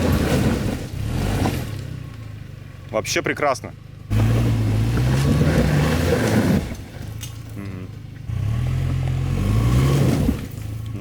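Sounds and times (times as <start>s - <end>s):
car engine revving: 3.6s - 11.0s.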